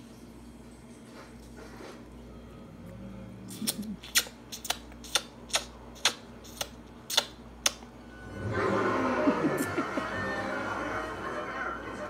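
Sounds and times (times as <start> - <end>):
toddler chewing with mouth clicks: 3.5 - 7.9.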